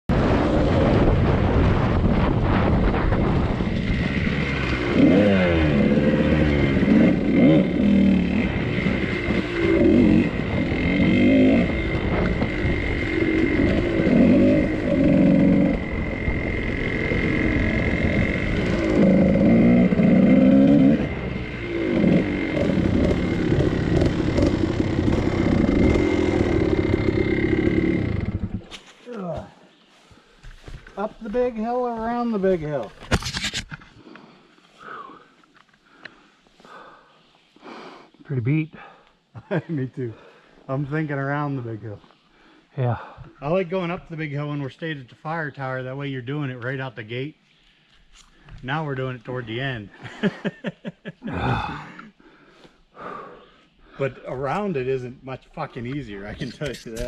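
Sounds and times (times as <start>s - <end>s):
dirt bike engine revving: 0.1s - 28.9s.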